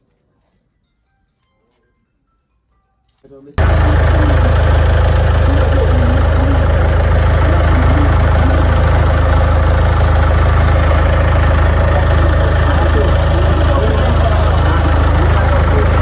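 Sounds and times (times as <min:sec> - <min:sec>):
excavator engine idling: 0:03.6 - 0:16.0.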